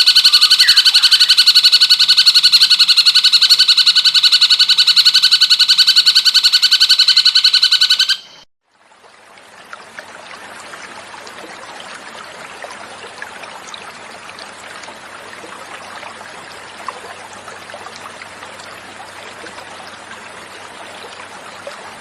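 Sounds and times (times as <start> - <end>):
bird ringing trill: 0.0 - 8.4
stream water flowing: 0.0 - 22.0
water splashing and trickling: 8.6 - 22.0.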